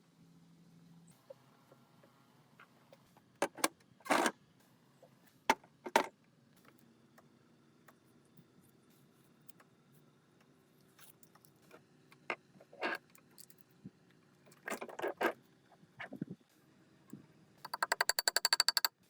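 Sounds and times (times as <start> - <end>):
ratchet clicking: 17.6 - 19.0.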